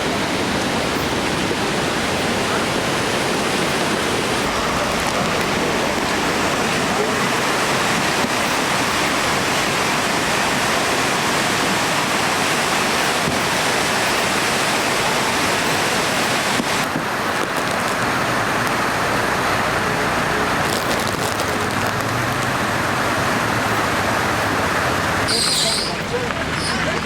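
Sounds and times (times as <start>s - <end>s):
rushing storm water: 0.0s - 27.0s.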